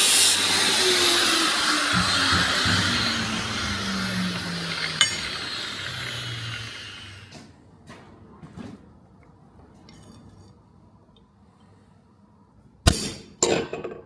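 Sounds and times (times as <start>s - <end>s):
power tool motor winding down: 0.0s - 7.4s.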